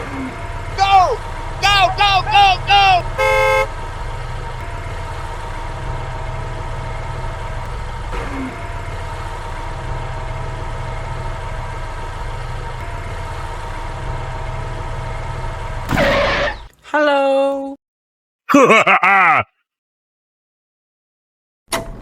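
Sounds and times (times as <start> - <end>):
vehicle engine running: 0.0 - 16.8.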